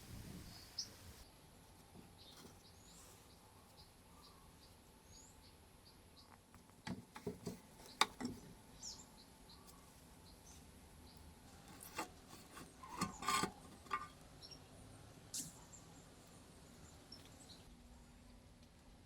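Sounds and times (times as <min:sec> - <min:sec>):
faint bird chirps: 0:02.1 - 0:06.4, 0:07.8 - 0:11.3
sharp clicks and knocks: 0:06.6 - 0:08.5, 0:11.7 - 0:14.1.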